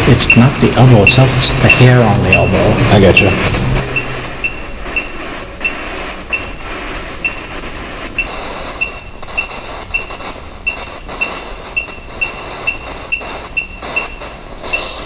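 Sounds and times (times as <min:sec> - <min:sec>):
high electronic chirps: 0:00.0 - 0:15.0
static hiss: 0:00.0 - 0:15.0.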